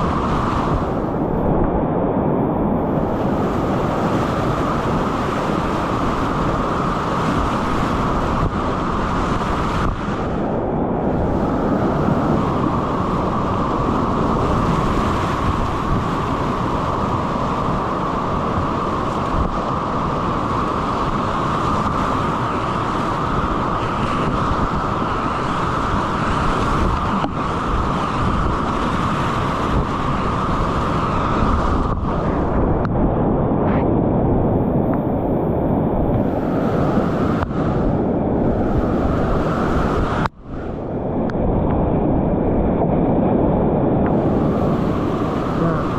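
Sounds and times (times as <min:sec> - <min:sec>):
whitewater rapids rushing: 0:03.1 - 0:32.6.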